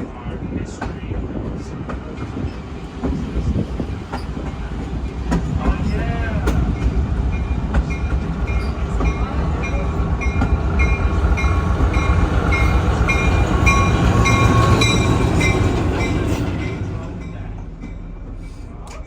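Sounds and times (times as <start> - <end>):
train wheels rumbling: 0.0 - 19.0
railroad crossing bell ringing: 6.7 - 18.6.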